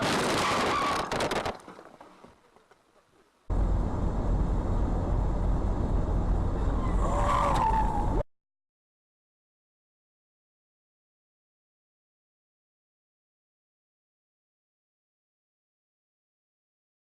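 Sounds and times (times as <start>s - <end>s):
car engine and road noise: 3.4s - 8.3s.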